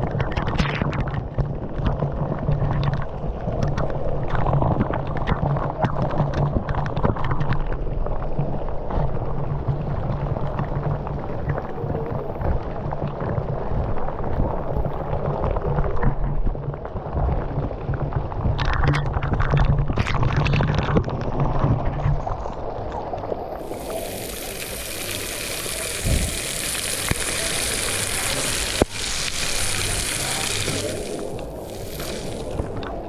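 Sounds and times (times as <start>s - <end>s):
waterfall rushing: 23.6s - 33.0s.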